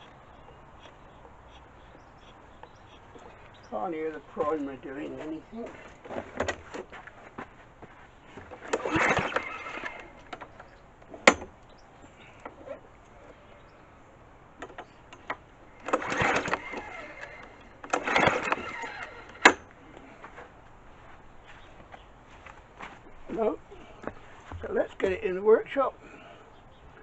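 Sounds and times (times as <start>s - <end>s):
lawnmower engine cranking: 2.6s - 7.1s, 8.4s - 11.6s, 14.6s - 20.5s.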